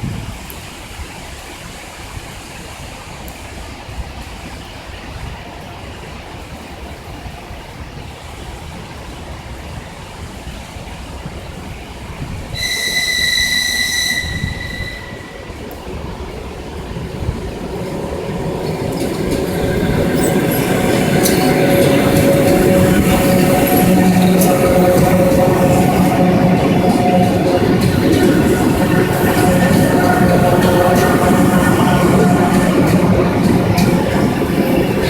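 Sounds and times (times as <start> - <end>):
rain: 0.0 - 35.0
train rolling past: 0.0 - 35.0
shrill train squeal: 12.5 - 35.0.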